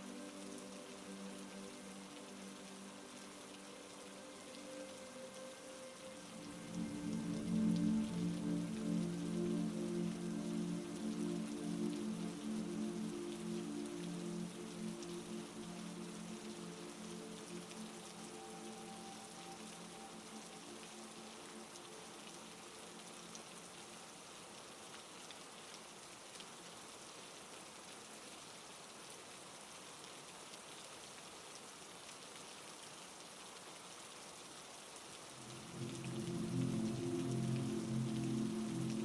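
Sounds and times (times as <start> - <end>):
low musical drone: 0.0 - 23.8, 35.4 - 39.0
heavy rain: 0.0 - 39.0.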